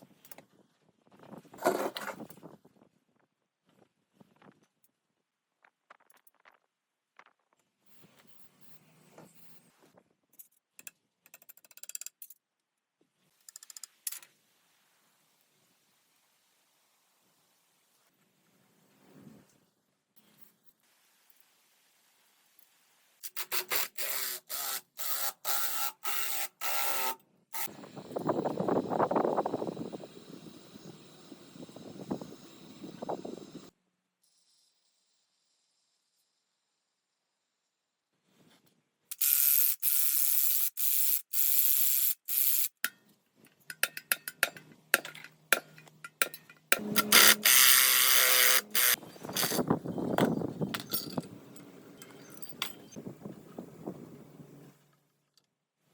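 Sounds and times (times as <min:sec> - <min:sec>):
mechanical tool running: 0:39.1 - 0:42.7, 0:46.8 - 0:49.7
rough dense machine noise: 0:46.7 - 0:49.6
short bursts of mechanical noise: 0:46.8 - 0:49.7.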